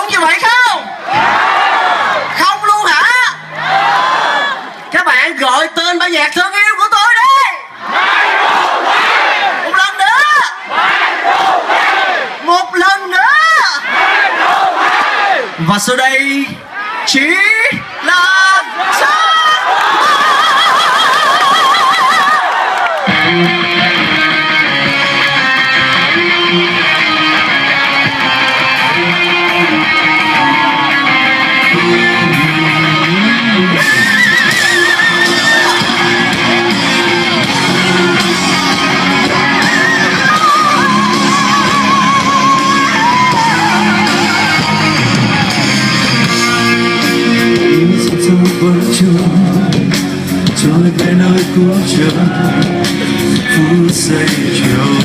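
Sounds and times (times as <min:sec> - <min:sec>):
bass guitar: 0:00.9 - 0:04.9, 0:23.0 - 0:55.0
rock band playing live: 0:01.1 - 0:04.0, 0:23.0 - 0:55.0
electric guitar lead: 0:23.0 - 0:55.0.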